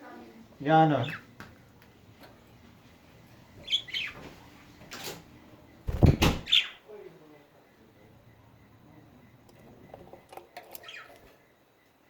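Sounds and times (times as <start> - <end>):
loud thump: 5.9 - 6.5
budgie chirping: 5.9 - 6.8.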